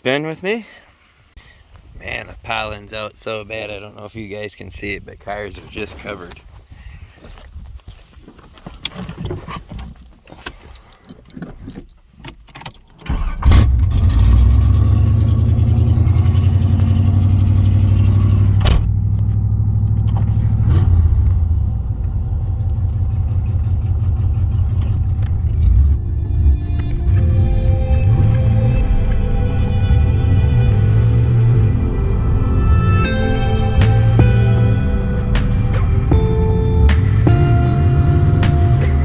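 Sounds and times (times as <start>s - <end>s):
skid steer engine droning: 13.6s - 39.0s.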